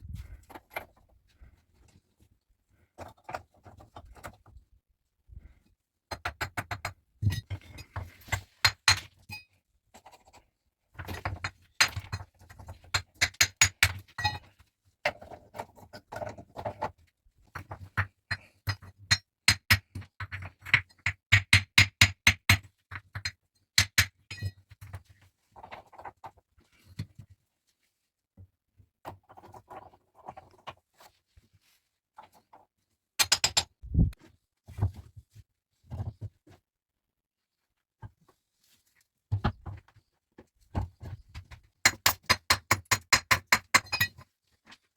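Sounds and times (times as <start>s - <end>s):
hard objects knocking and clinking: 33.2s - 33.8s, 41.9s - 44.2s.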